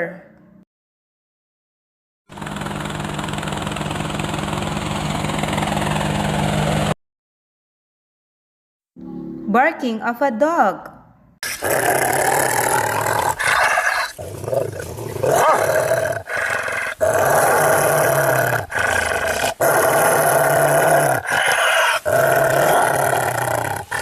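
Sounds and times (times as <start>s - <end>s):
dog barking and growling: 11.4s - 24.0s.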